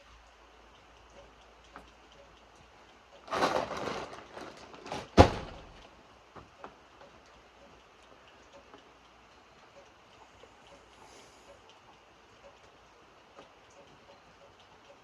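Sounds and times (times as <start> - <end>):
faint dripping ticks: 0.0 - 3.3, 5.6 - 15.0
rustling scrape: 3.3 - 5.2.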